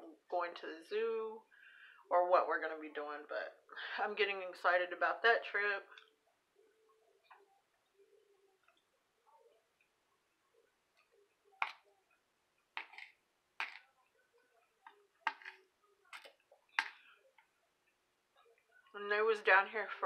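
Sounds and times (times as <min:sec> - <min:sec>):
person chewing food: 0:12.8 - 0:13.8.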